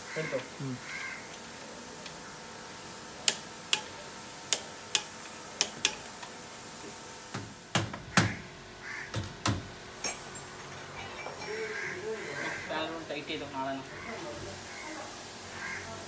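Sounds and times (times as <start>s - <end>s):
light tool clicks: 3.2s - 3.9s, 4.5s - 6.3s.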